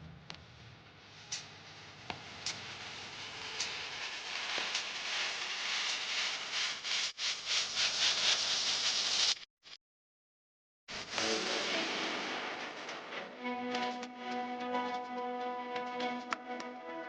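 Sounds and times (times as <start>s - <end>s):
hissy scratching rubbing strokes: 2.2s - 9.5s.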